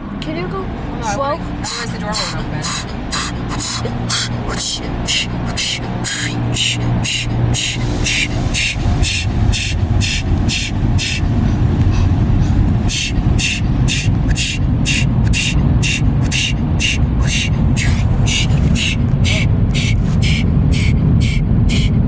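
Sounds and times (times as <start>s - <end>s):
car wash machinery rumble: 0.0s - 22.0s.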